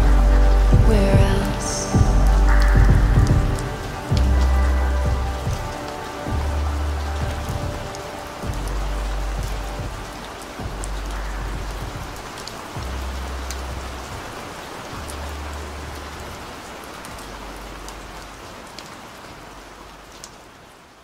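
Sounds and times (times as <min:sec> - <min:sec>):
muffled deep bass notes: 0:00.0 - 0:14.4
steady rain: 0:00.0 - 0:21.0.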